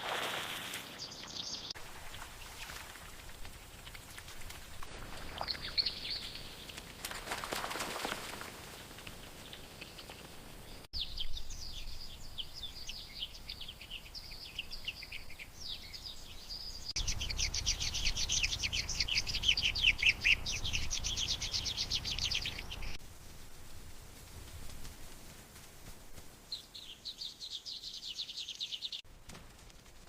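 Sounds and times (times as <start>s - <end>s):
small birds twittering: 0.2s - 2.7s, 5.2s - 6.8s, 9.2s - 23.0s, 26.5s - 29.0s.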